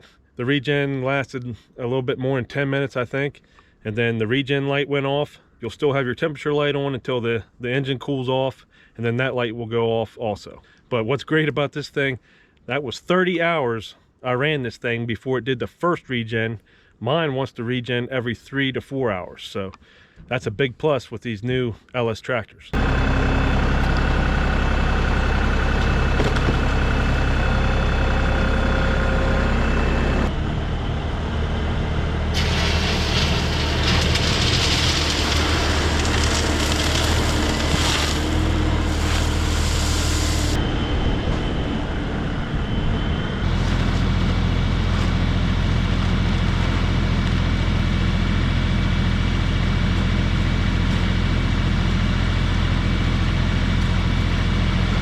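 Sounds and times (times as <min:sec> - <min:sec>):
tractor diesel engine running: 0:22.8 - 0:55.0
rushing noise: 0:26.6 - 0:44.0.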